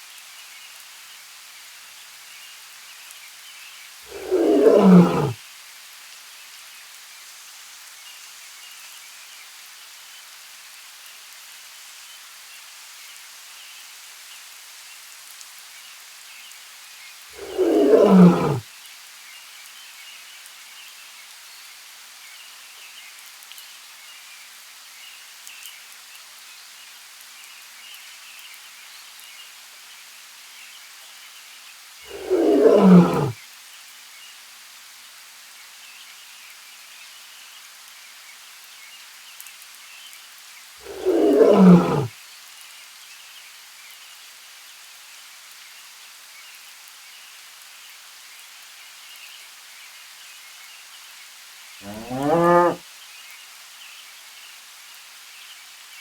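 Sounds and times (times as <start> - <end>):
faint outdoor hiss: 0.0 - 56.0
big cat roaring: 4.1 - 5.4, 17.4 - 18.6, 32.1 - 33.4, 40.8 - 42.1, 51.8 - 52.8.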